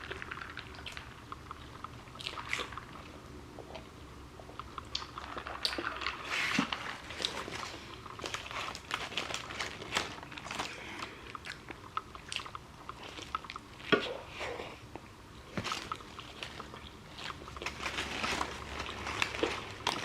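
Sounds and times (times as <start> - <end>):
person chewing food: 0.0 - 20.0
crisp crunches: 6.3 - 13.9, 15.5 - 20.0.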